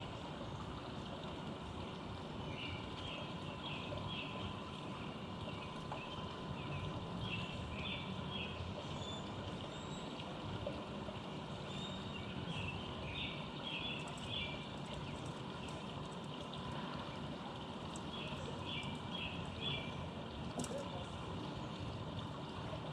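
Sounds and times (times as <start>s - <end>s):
low rumble of city traffic: 0.0s - 22.9s
songbird singing: 2.4s - 10.2s, 11.6s - 15.8s, 17.9s - 21.8s.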